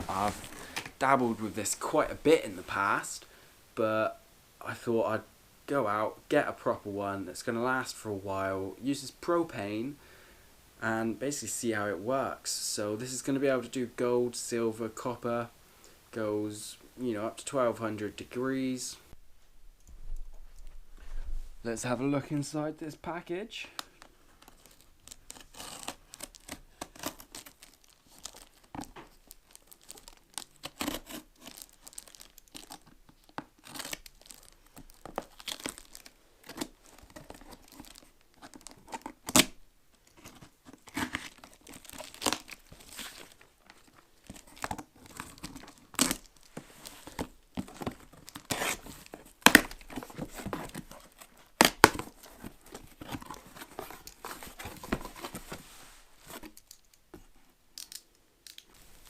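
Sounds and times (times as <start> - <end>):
packaging tearing and crinkling: 24.4 - 39.6, 40.2 - 55.4.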